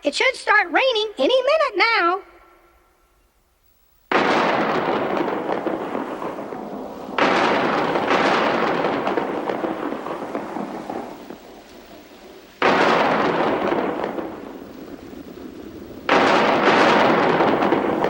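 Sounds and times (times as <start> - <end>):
cartoon thunder claps: 4.1 - 18.0.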